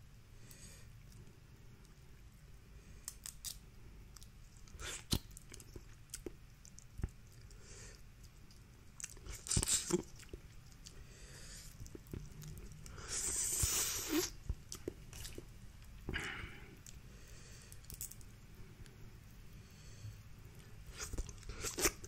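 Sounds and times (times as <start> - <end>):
wet chewing: 3.2 - 15.9, 20.6 - 22.0.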